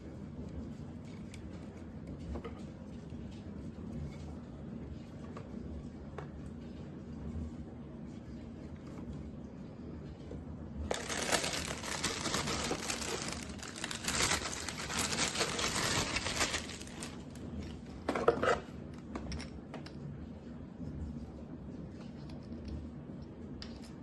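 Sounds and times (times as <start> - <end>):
packaging crinkling and rustling: 10.9 - 17.8.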